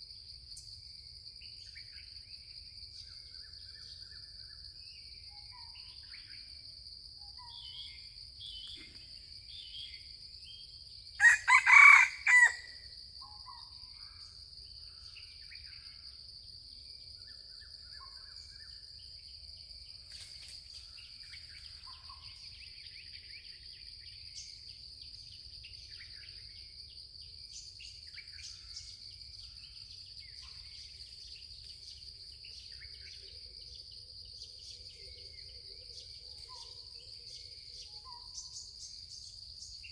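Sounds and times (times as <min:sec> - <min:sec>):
faint bird chirps: 0:01.4 - 0:12.4, 0:16.8 - 0:19.2, 0:20.0 - 0:39.9
rooster crowing: 0:11.2 - 0:12.8.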